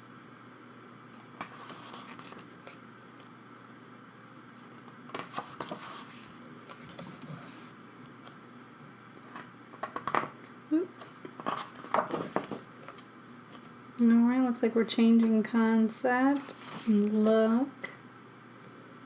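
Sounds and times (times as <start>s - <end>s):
book pages turning: 1.2s - 3.4s, 4.6s - 8.4s, 11.0s - 13.8s, 16.3s - 17.4s.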